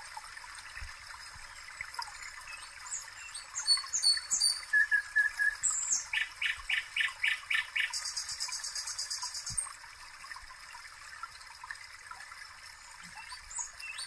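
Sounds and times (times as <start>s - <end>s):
small birds chirping: 2.4s - 9.7s.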